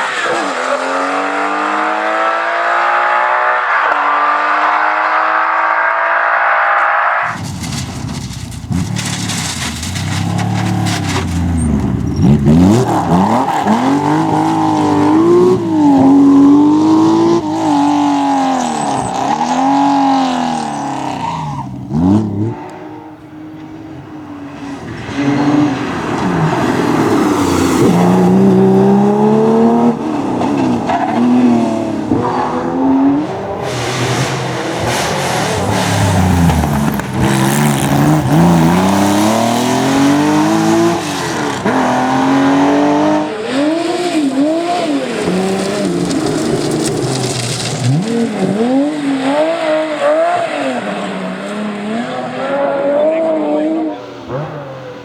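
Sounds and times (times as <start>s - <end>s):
racing car engines revving: 0.0s - 55.0s.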